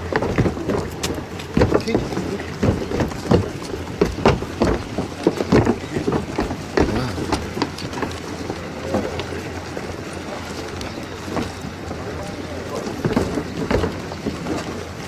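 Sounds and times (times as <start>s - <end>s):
faint voices: 4.8s - 15.0s.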